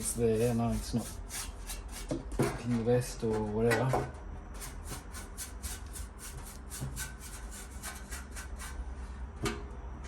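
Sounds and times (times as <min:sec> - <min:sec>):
brush scrubbing metal: 0:00.0 - 0:02.1, 0:04.6 - 0:08.8.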